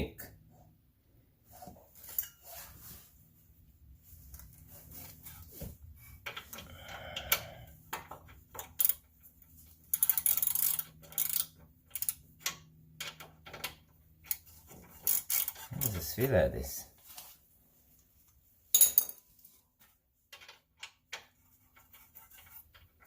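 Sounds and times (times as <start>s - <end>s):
metal tools clinking: 2.0s - 2.7s.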